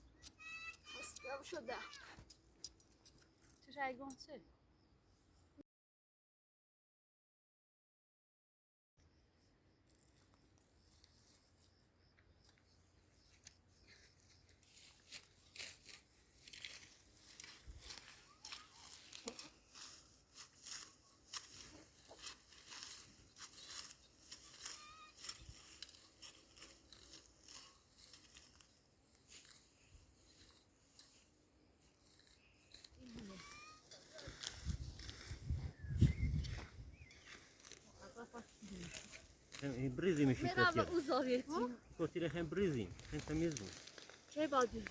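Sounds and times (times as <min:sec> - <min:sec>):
grass being cut and torn: 0:13.3 - 0:41.7, 0:42.6 - 0:44.9.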